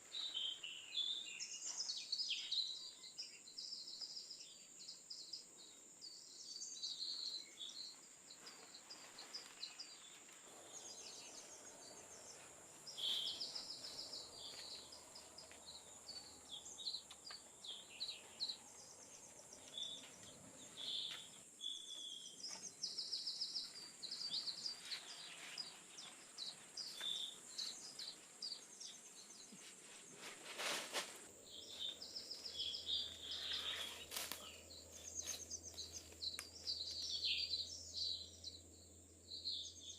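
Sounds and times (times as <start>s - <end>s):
small birds chirping and trilling: 0.0s - 39.9s
rustling swish: 30.1s - 31.3s.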